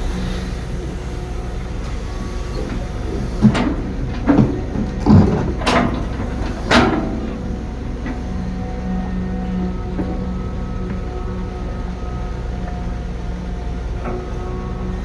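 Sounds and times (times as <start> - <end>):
excavator diesel engine running: 0.0 - 15.0
loud metallic clanks and scrapes: 1.8 - 8.5.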